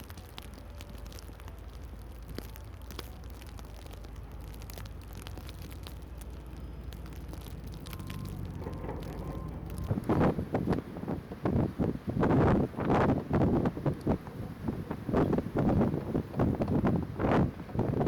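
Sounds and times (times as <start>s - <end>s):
sleet ticking on surfaces: 0.0s - 10.8s
low rumble of wind: 0.0s - 18.0s.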